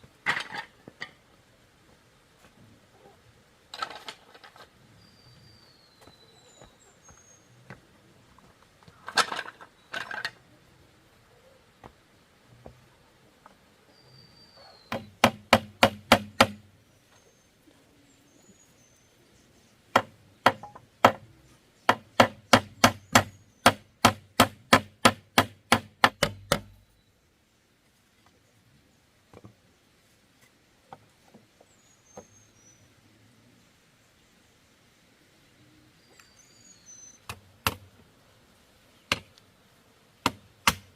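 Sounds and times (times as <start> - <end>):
hand tool striking bamboo: 14.9 - 16.6, 19.9 - 21.2, 21.9 - 26.8, 37.3 - 37.8, 39.1 - 39.3, 40.2 - 40.9.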